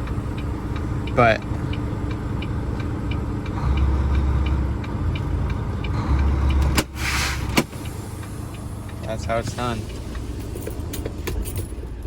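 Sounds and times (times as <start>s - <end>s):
light regular ticking: 0.0s - 7.0s, 7.6s - 11.6s
diesel truck engine running: 0.0s - 12.0s
short air hiss: 6.9s - 8.3s.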